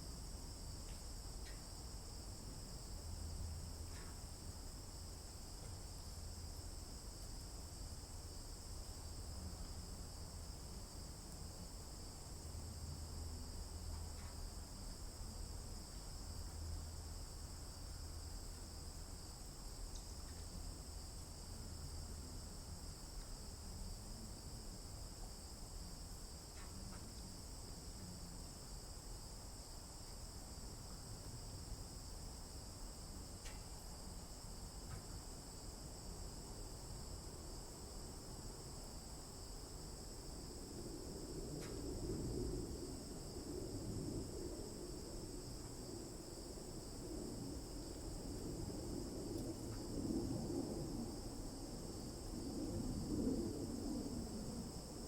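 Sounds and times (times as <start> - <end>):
faint soft ticks: 0.8 - 1.7, 3.8 - 4.2, 13.9 - 14.5, 19.9 - 20.6, 26.5 - 27.3, 33.4 - 33.7.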